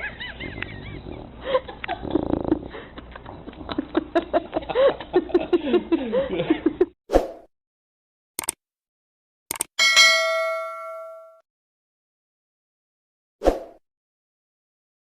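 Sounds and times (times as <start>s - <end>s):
dog whining and grumbling: 0.4s - 1.4s.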